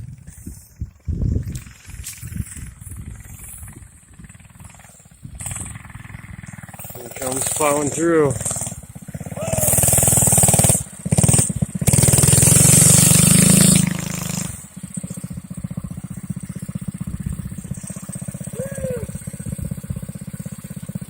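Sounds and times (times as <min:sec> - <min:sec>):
mini bike engine revving and idling: 0:00.0 - 0:21.0.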